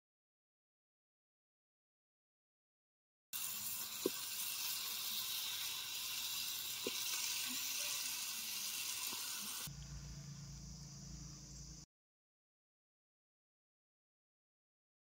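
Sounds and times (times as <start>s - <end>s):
food sizzling in hot oil: 3.4s - 9.7s
low steady hum: 9.6s - 11.8s.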